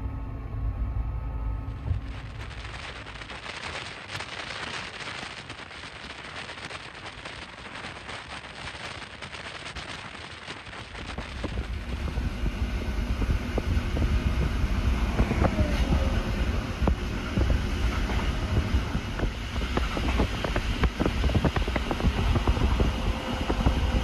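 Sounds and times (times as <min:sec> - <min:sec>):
loud low train rumble: 0:00.0 - 0:09.2, 0:09.8 - 0:24.0
wind through open window: 0:01.6 - 0:24.0
train rushing hiss with clicks: 0:01.7 - 0:24.0.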